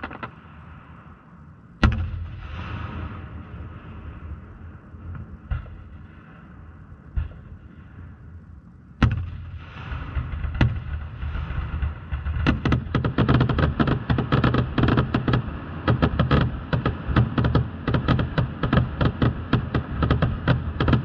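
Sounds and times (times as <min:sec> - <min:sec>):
fireworks launching and bursting: 0:00.0 - 0:01.1, 0:09.0 - 0:21.0
low rumble of booms: 0:00.0 - 0:21.0.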